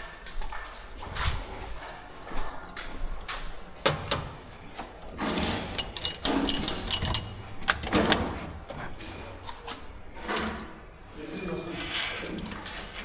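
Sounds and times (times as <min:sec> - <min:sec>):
metal tools knocking and clinking: 0:04.8 - 0:09.6
ringing metallic clinks: 0:05.3 - 0:07.8, 0:11.0 - 0:12.8.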